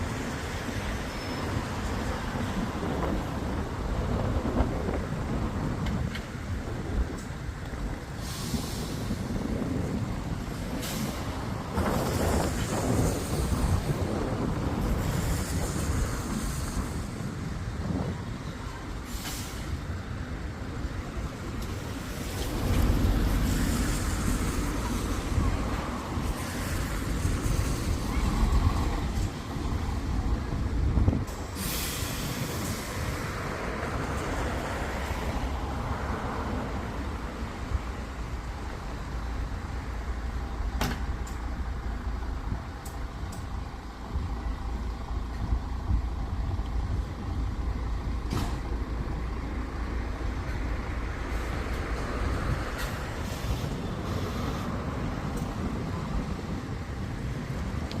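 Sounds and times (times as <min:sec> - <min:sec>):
bus engine rumble: 0:00.0 - 0:58.0
air brakes hissing: 0:08.1 - 0:09.5, 0:10.6 - 0:14.1, 0:19.0 - 0:20.0, 0:31.2 - 0:33.6, 0:51.3 - 0:55.5.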